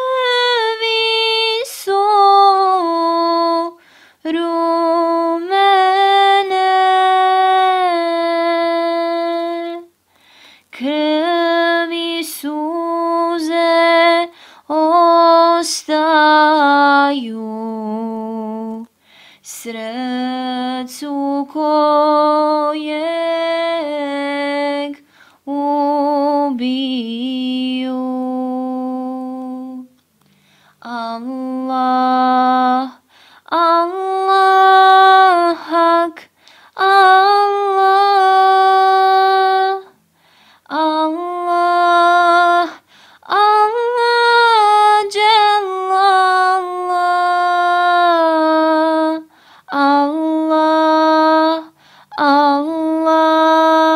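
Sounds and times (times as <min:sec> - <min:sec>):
person singing devotional chant: 0:19.5 - 0:29.9, 0:30.8 - 0:40.0, 0:40.6 - 0:53.9.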